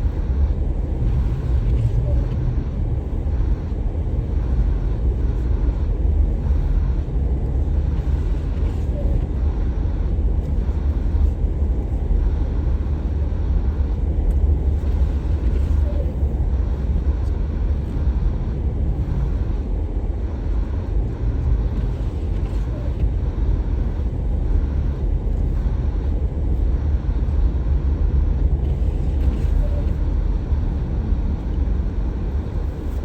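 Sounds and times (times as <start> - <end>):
car engine and tyres rumbling: 0.0 - 33.0.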